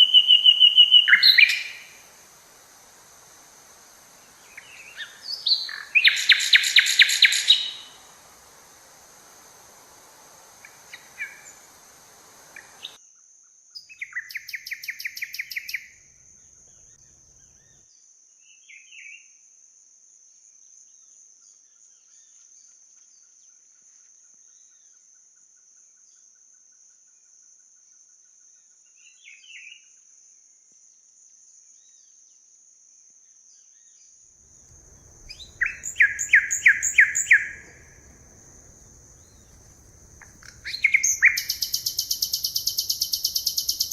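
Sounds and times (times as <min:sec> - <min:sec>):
forest birds calling: 0:00.0 - 0:13.0, 0:34.6 - 0:43.9.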